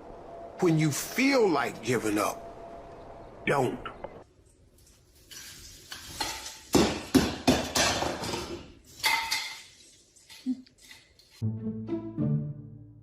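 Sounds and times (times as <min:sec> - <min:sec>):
music: 0:11.4 - 0:13.0.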